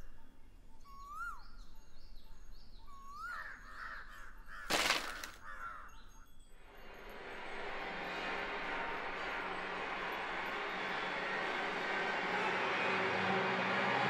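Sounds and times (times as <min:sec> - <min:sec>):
crows cawing: 0:03.2 - 0:05.9
firewood sticks dropped on ground: 0:04.7 - 0:05.5.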